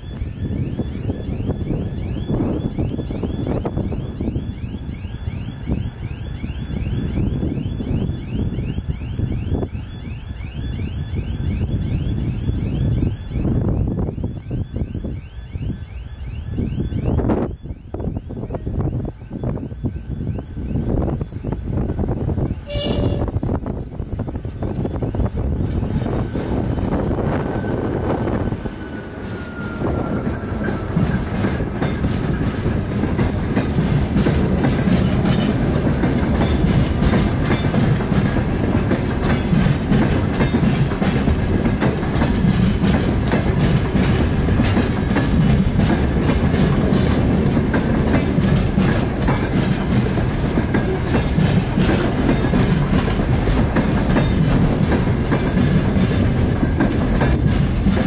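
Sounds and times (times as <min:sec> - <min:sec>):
diesel locomotive engine rumbling: 0:00.0 - 0:58.0
wheels clicking over rail joints: 0:22.1 - 0:58.0.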